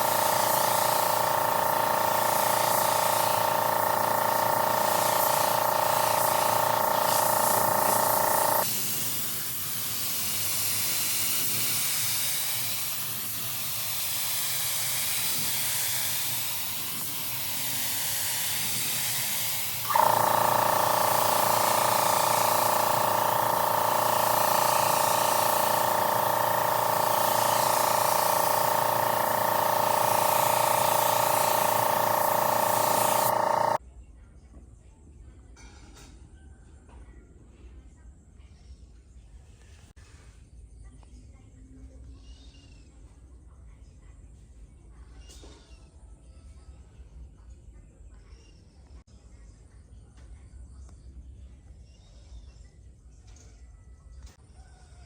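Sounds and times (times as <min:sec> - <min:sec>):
machine hum: 0:00.0 - 0:08.8, 0:10.2 - 0:33.8
air hissing: 0:00.0 - 0:33.8.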